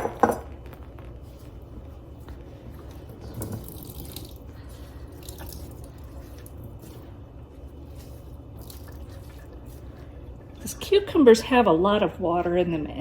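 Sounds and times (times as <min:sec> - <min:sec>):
low steady hum: 0:00.0 - 0:13.0
liquid dripping and trickling: 0:02.8 - 0:10.9.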